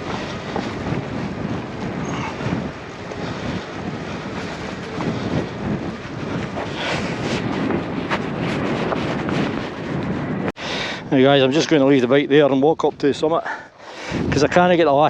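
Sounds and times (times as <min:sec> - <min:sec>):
e-bike rumble: 0:00.0 - 0:12.6
wind buffeting microphone: 0:00.0 - 0:15.0.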